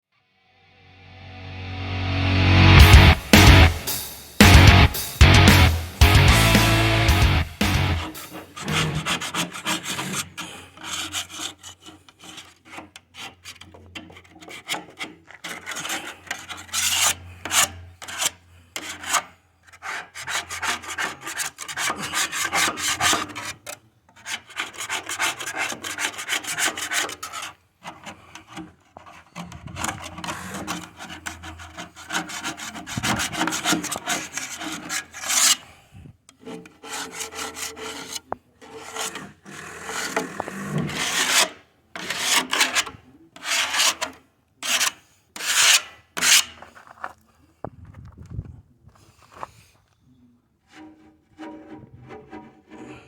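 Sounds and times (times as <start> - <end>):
paint scraping by hand: 7.9 - 23.5, 24.2 - 35.7, 36.4 - 47.3.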